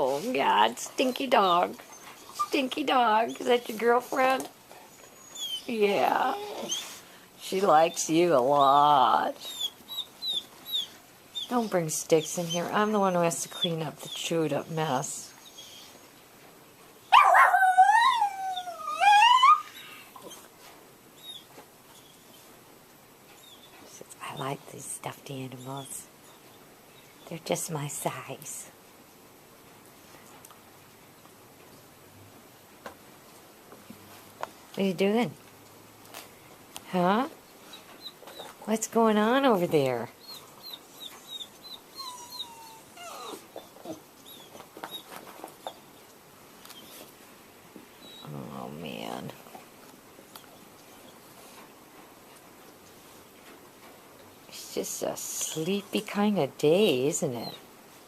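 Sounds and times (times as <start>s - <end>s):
dog whining: 4.8s - 7.0s, 9.4s - 11.5s, 15.4s - 16.2s, 17.1s - 20.5s, 21.2s - 22.4s, 40.2s - 45.9s, 48.0s - 48.4s.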